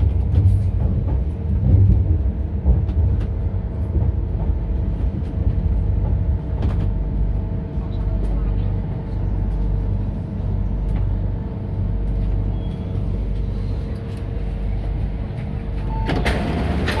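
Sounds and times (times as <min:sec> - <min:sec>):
train doors opening: 0:00.0 - 0:07.1, 0:12.0 - 0:17.0
train rumble and hum: 0:00.0 - 0:17.0.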